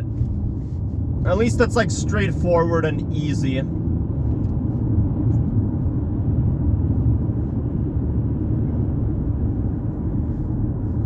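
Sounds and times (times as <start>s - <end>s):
vehicle road and engine rumble: 0.0s - 11.0s.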